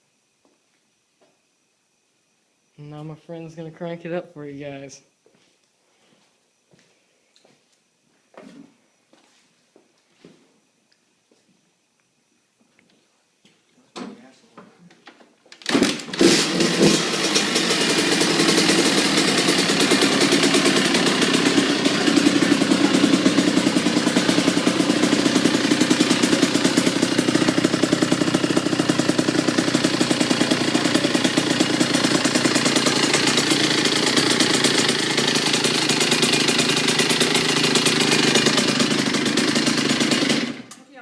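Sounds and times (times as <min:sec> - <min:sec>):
two-stroke motorcycle engine idling: 0:15.9 - 0:40.7.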